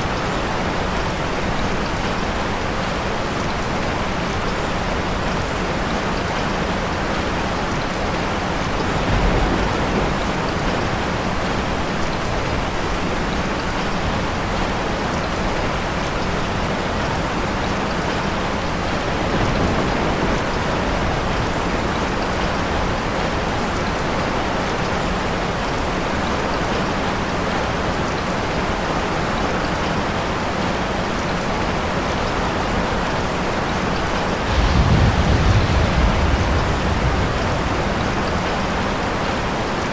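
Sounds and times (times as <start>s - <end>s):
steady rain falling: 0.0s - 39.9s
distant thunder rumbles: 7.9s - 12.4s, 18.8s - 23.9s, 33.7s - 39.9s.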